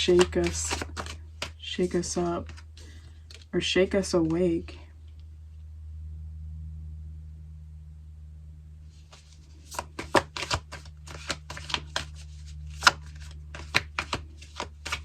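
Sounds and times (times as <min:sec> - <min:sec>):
cards being shuffled: 0:00.0 - 0:03.5, 0:08.9 - 0:15.0
low electrical hum: 0:00.0 - 0:15.0.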